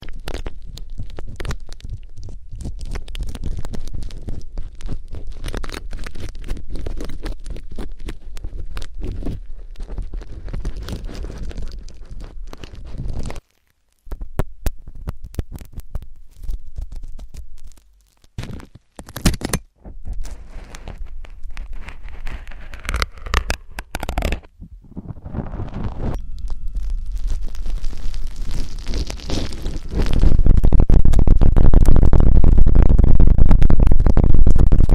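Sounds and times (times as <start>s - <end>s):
ear pick scraping: 3.6s - 32.3s
low rumble: 19.8s - 34.9s.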